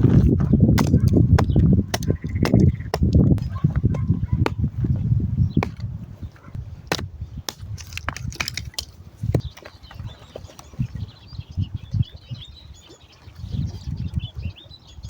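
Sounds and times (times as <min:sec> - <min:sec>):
irregular crunching: 0:06.9 - 0:09.0.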